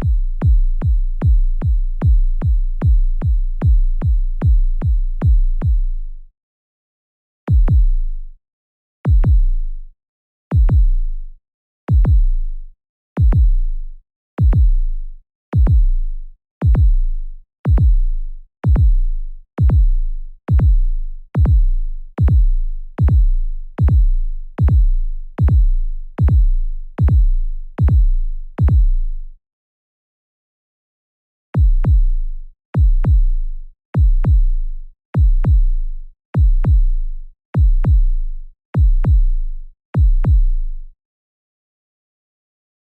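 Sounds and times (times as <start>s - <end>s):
heartbeat thumps: 0.0s - 5.8s, 7.5s - 8.0s, 9.1s - 9.5s, 10.5s - 11.0s, 11.9s - 12.3s, 13.2s - 13.6s, 14.4s - 14.8s, 15.6s - 15.9s, 16.6s - 17.0s, 17.7s - 18.0s, 18.7s - 19.0s, 19.6s - 20.8s, 21.4s - 29.0s, 31.6s - 32.1s, 32.8s - 33.3s, 34.0s - 34.5s, 35.2s - 35.7s, 36.4s - 37.0s, 37.6s - 38.2s, 38.8s - 39.3s, 40.0s - 40.6s.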